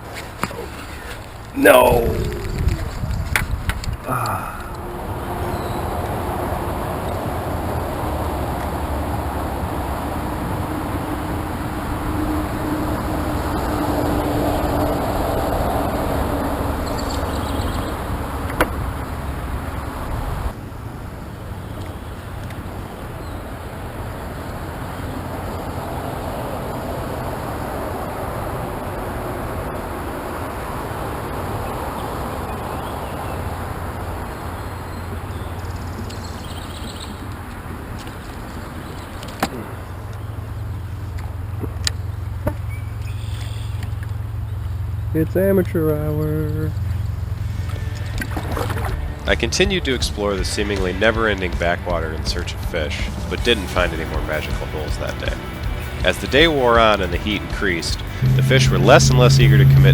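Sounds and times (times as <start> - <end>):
low rumble and hiss: 0.5 - 5.1, 56.2 - 59.9
low rumbling noise: 1.5 - 8.3, 44.0 - 53.8, 57.6 - 59.9.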